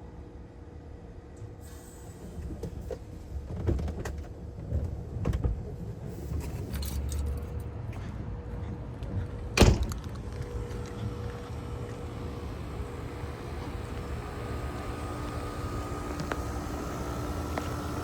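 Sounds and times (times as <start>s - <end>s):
heat pump humming: 10.5s - 18.0s.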